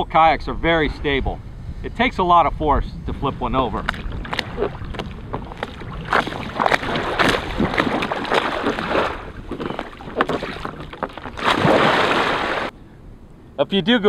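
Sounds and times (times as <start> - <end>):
water splashing around kayak: 3.4 - 12.7.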